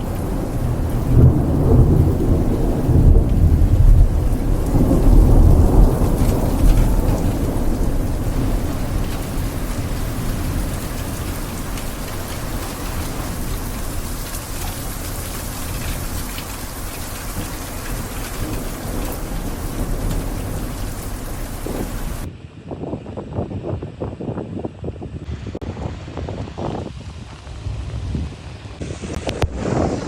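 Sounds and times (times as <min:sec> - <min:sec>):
heavy rain pouring: 0:00.0 - 0:22.3.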